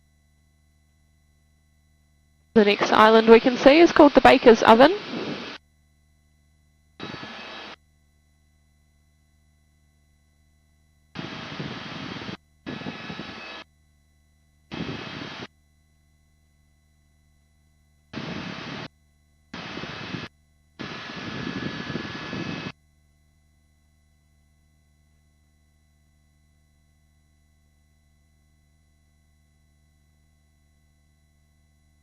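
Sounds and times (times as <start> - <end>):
helicopter engine and rotor noise: 2.6 - 5.6, 7.0 - 7.8, 11.2 - 13.7, 19.6 - 22.8
low intercom hum: 2.6 - 5.6.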